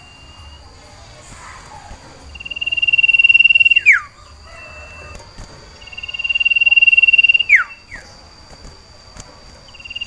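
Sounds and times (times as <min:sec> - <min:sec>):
bird singing high trill: 0:00.0 - 0:05.2, 0:05.8 - 0:08.2, 0:09.7 - 0:10.0.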